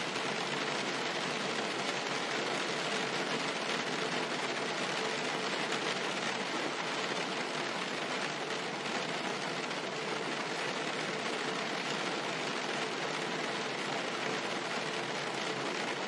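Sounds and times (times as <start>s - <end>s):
rain on car roof: 0.0s - 16.0s.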